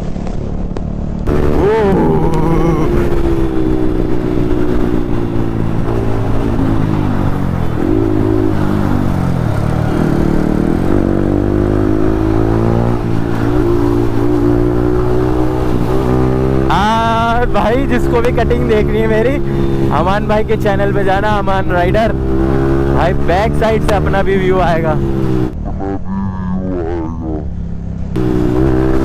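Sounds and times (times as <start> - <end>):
wind rush: 0.0 - 17.3
motorcycle engine at speed: 0.0 - 29.0.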